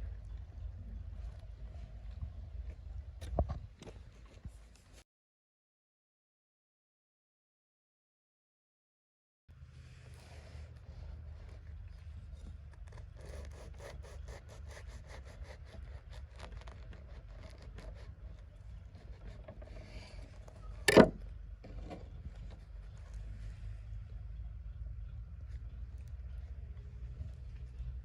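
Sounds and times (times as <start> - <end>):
low steady rumble: 0.0 - 3.8, 9.5 - 28.0.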